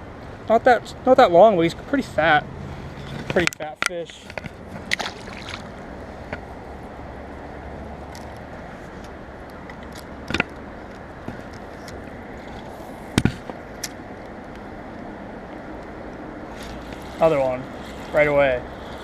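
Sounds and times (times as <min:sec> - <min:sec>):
creek water flowing: 0:00.0 - 0:19.0
sharp clicks or knocks: 0:09.6 - 0:12.0.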